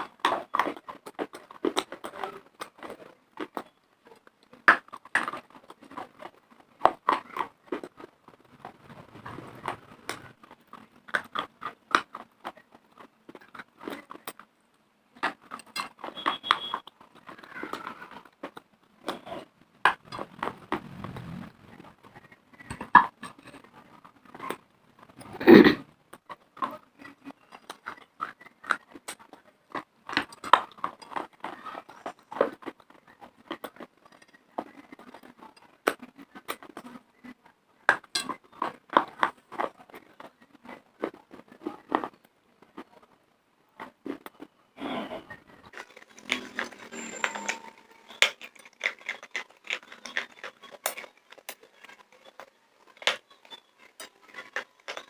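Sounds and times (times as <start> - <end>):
crunching and chewing clay: 0.0 - 55.0
loud crack of biting: 48.0 - 53.2.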